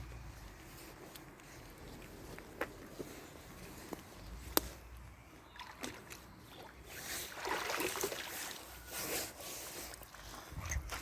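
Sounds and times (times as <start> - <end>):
water sloshing and dripping: 5.5 - 8.8, 9.8 - 11.0.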